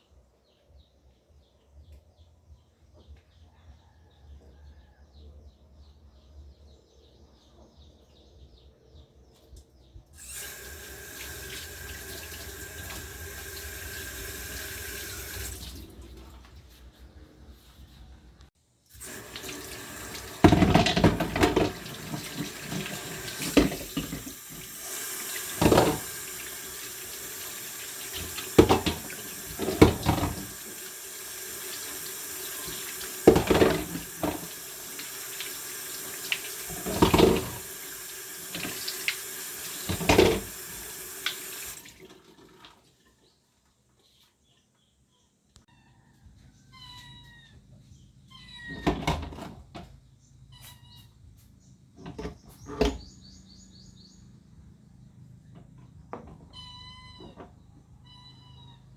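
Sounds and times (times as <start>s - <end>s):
water running from a tap: 10.2s - 16.1s, 18.9s - 42.8s.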